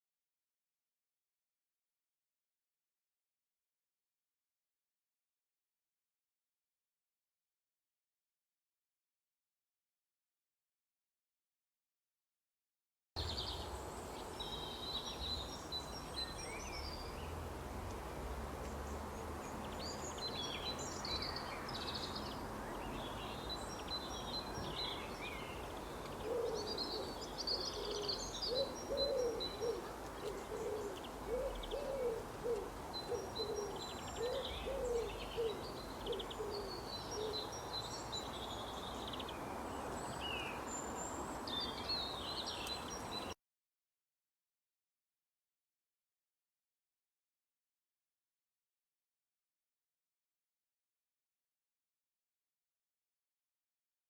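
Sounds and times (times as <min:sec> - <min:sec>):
small birds chirping and singing: 0:13.2 - 0:17.4, 0:18.6 - 0:43.4.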